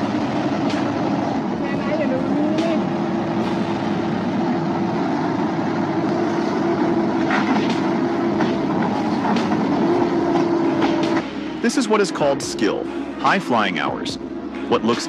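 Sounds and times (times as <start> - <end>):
heavy vehicle engine droning: 0.0 - 15.0
knocks and clanks: 7.2 - 11.4.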